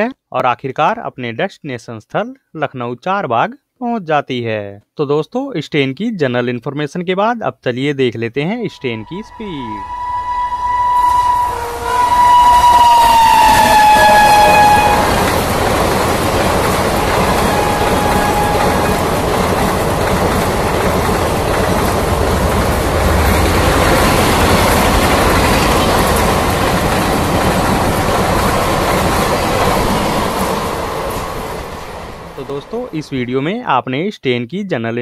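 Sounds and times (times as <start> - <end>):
train passing wheel rush: 8.7 - 33.5.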